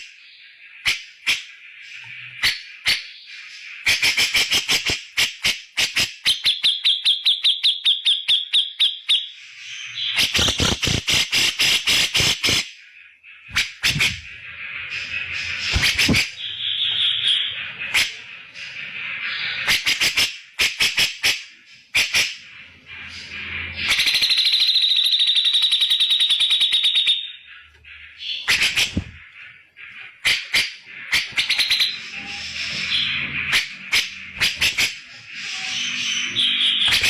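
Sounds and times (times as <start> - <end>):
bird harsh chattering calls: 0.0 - 37.0.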